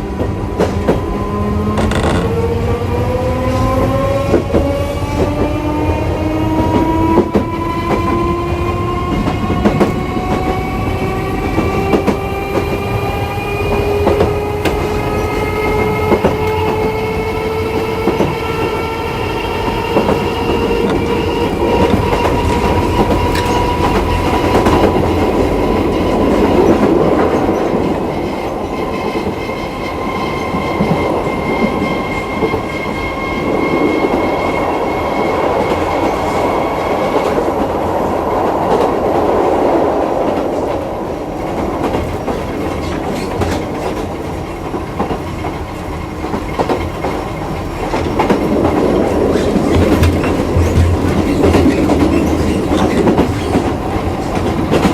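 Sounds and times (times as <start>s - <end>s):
tram motor whine rising in pitch: 0.0s - 37.2s
clatter of rail joints: 0.6s - 2.6s, 19.6s - 31.8s, 41.5s - 54.9s.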